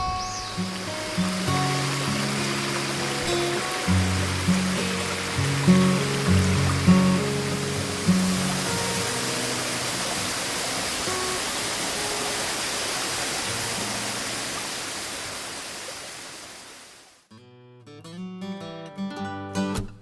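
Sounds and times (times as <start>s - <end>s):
acoustic guitar music: 0.0s - 12.4s, 13.5s - 14.6s, 17.3s - 20.0s
steady rushing noise: 0.0s - 16.0s.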